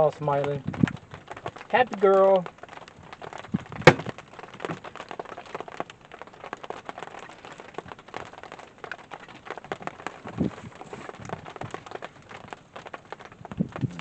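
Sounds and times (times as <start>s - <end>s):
rain pattering: 0.0s - 14.0s
sharp knock: 3.9s - 4.1s.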